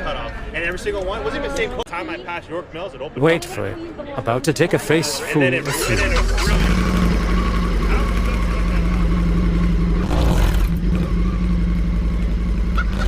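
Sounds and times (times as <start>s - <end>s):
motorcycle engine idling: 5.7s - 13.0s.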